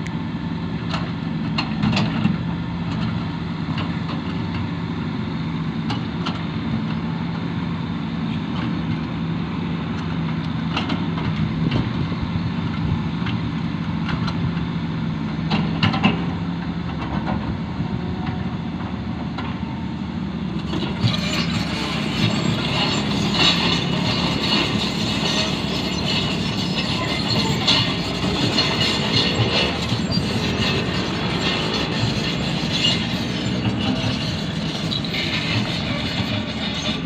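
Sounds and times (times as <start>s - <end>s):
excavator diesel engine running: 0.0s - 37.0s
metallic clanking and rattling: 20.6s - 37.0s.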